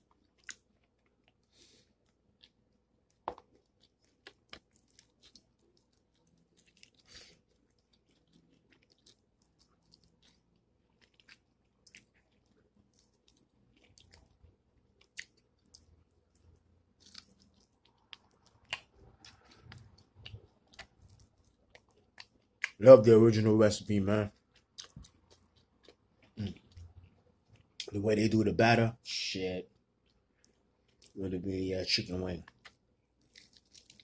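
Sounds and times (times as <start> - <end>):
chewing and biting: 0.0 - 22.8, 24.3 - 27.9, 32.5 - 34.0.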